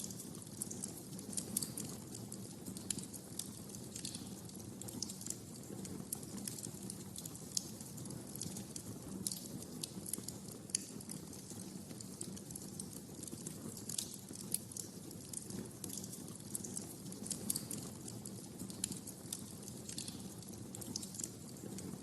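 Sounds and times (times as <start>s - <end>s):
wood fire pops and snaps: 0.0s - 22.0s.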